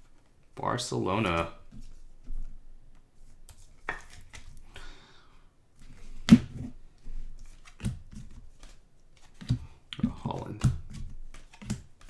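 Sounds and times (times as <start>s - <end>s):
cards rustling: 3.2s - 4.8s, 7.0s - 12.0s.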